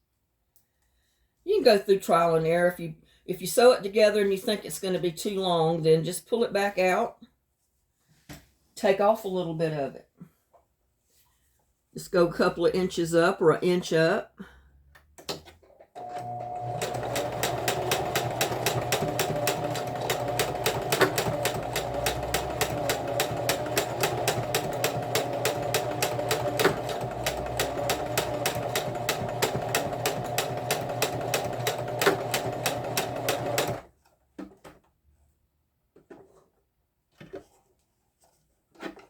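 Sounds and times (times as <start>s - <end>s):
faint handling sounds: 10.2s - 11.9s, 34.0s - 39.0s
sewing machine stitching: 16.0s - 33.9s.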